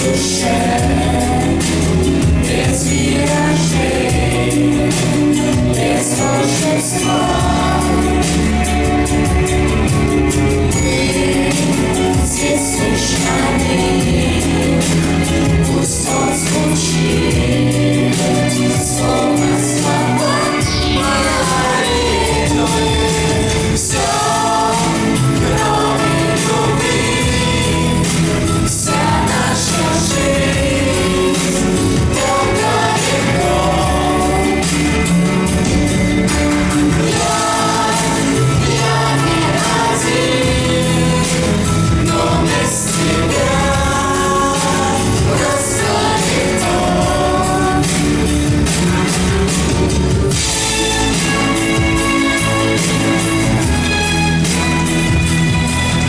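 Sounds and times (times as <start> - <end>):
group of people singing: 0.0 - 56.0
instrumental accompaniment with bass: 0.0 - 56.0.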